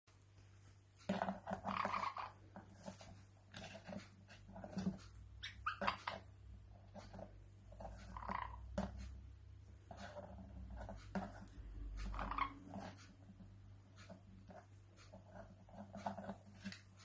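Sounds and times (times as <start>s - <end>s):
parrot calls: 5.4s - 6.2s.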